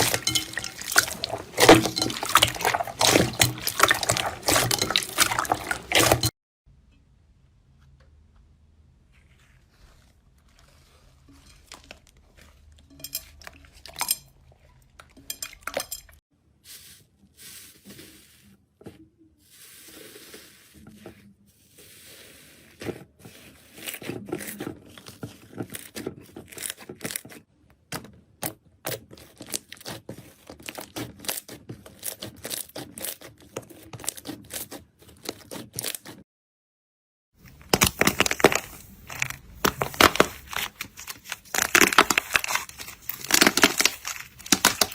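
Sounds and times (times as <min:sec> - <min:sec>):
slime crackling and popping: 0:37.6 - 0:44.9.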